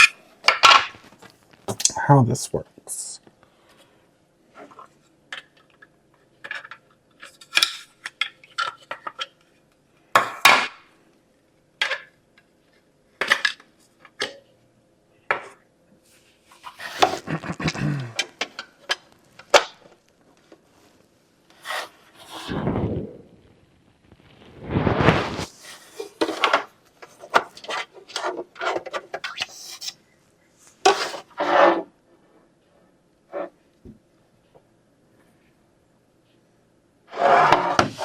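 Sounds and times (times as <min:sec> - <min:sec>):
parts scraping and rubbing: 0:16.1 - 0:19.0, 0:21.5 - 0:22.8, 0:24.6 - 0:30.0, 0:30.8 - 0:31.9, 0:37.1 - 0:38.0.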